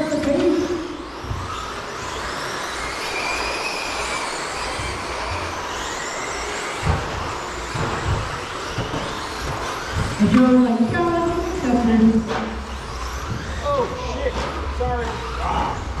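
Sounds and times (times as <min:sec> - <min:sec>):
rc truck motor whine: 0:00.0 - 0:16.0
tyres rushing on surface: 0:00.0 - 0:16.0
low thumps: 0:06.9 - 0:16.0.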